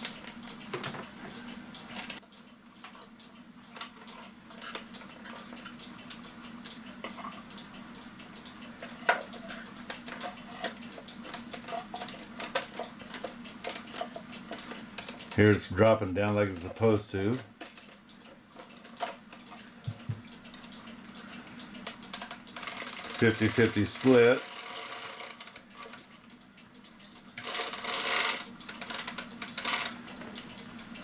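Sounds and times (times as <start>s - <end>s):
clock chain metallic clicks and rattles: 9.3s - 15.5s, 21.8s - 26.2s, 27.0s - 30.0s
sharp clock ticks: 21.9s - 25.6s.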